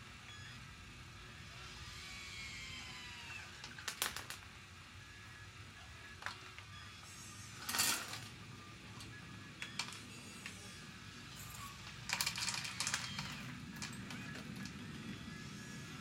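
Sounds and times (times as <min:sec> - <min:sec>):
small plastic pieces clicking: 0:03.6 - 0:04.4, 0:11.8 - 0:14.8.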